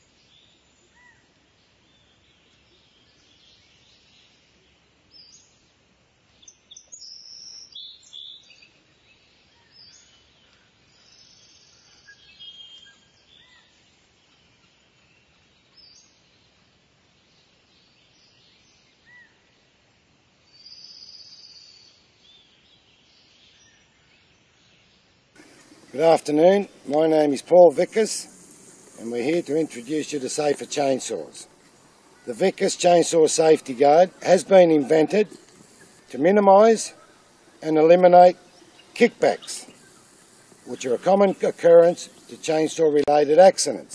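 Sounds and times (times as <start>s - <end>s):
faint outdoor background noise: 0.0s - 43.9s
birds chirping and whistling: 25.4s - 43.9s.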